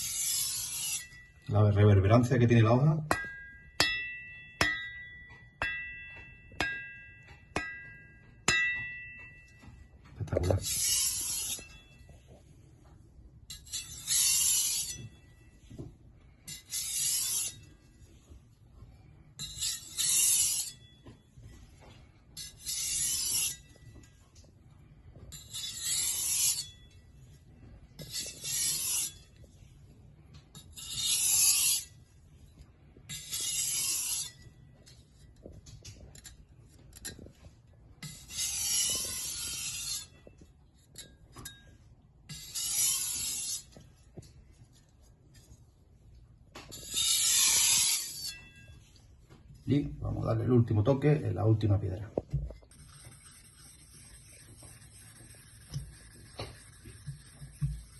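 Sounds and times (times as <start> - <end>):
blade rasping on a whetstone: 0.0 - 1.4, 10.3 - 12.1, 13.5 - 15.3, 16.5 - 18.1, 19.4 - 20.9, 22.4 - 24.2, 25.3 - 27.0, 28.0 - 29.7, 30.6 - 32.1, 33.1 - 35.3, 38.0 - 41.6, 42.3 - 44.1, 46.7 - 48.7, 52.6 - 57.9.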